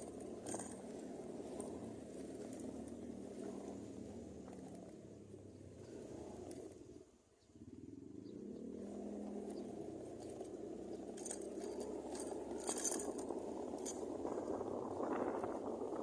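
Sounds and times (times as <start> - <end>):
light clinking: 0.0 - 3.0, 10.2 - 14.2
motor engine running: 0.0 - 7.0, 7.6 - 16.0.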